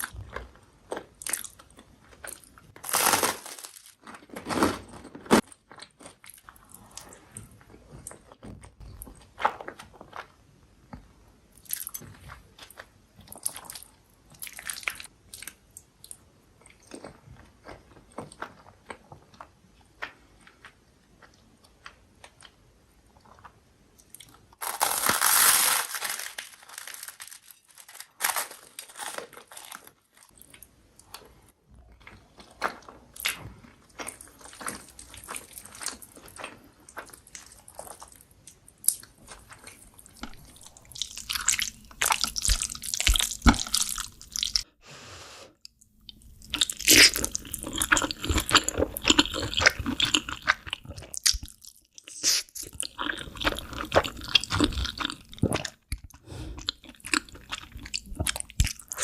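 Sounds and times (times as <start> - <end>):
crunchy chewing and biting: 38.8 - 44.6, 46.1 - 59.0.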